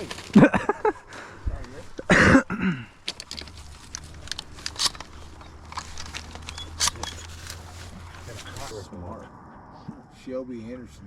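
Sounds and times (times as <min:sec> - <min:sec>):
light clicks and rustles: 0:03.0 - 0:08.8.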